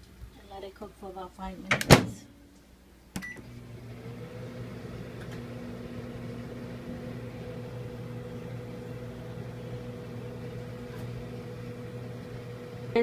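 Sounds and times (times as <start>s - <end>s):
microwave oven humming: 3.1s - 13.0s.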